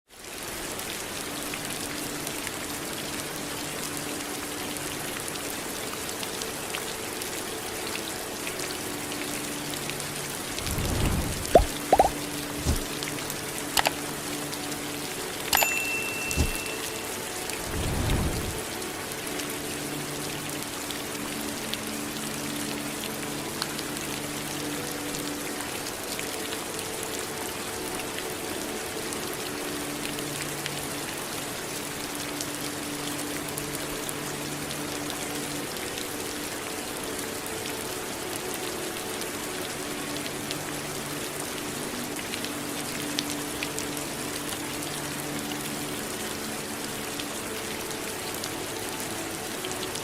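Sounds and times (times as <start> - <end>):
steady rain: 0.1 - 50.0
low rumbles: 10.5 - 12.9.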